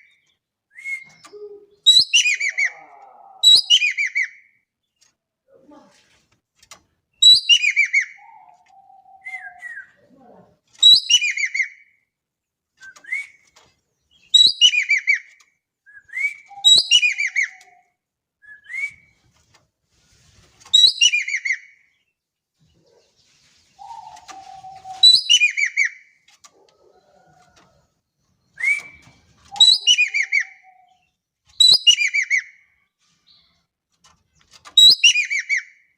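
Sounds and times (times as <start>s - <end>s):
songbird singing: 0.0s - 5.2s, 7.1s - 11.6s, 12.8s - 19.2s, 20.8s - 33.7s
short rising whistled notes: 28.5s - 30.2s.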